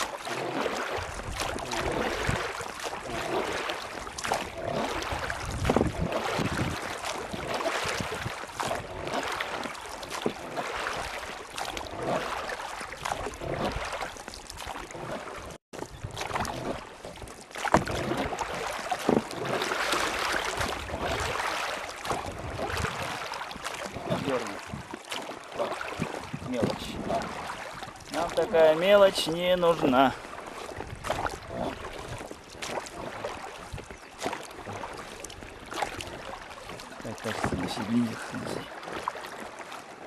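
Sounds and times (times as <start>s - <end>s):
knocks and splashes: 0.0s - 40.0s
rushing water: 0.0s - 40.0s
wind buffeting microphone: 1.0s - 9.1s, 22.1s - 25.0s, 25.9s - 28.7s.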